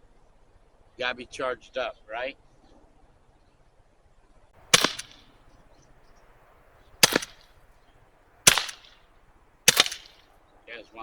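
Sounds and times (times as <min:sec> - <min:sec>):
air gun shots: 0:04.7 - 0:05.2, 0:07.0 - 0:07.4, 0:08.5 - 0:09.0, 0:09.7 - 0:10.2.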